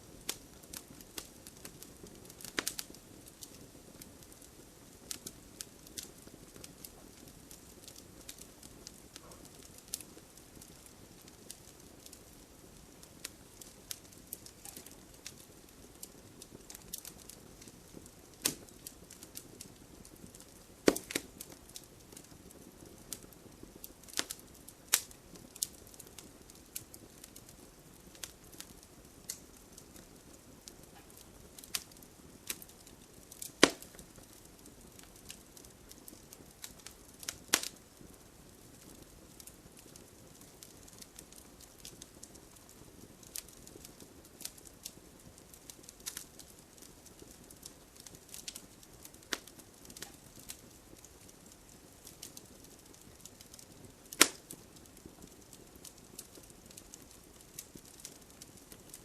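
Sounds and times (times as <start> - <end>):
fire hiss: 0.0 - 59.0
wood fire crackling and popping: 0.0 - 59.0.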